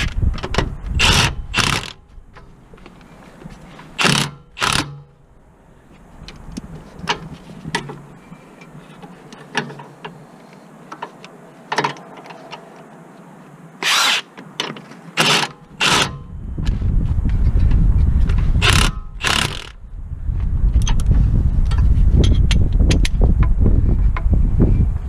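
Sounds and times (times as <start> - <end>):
loud bursts of tool noise: 1.0 - 2.0, 4.0 - 5.1, 13.8 - 14.3, 15.2 - 16.3, 18.6 - 19.8
light metallic clicks and knocks: 6.2 - 10.2.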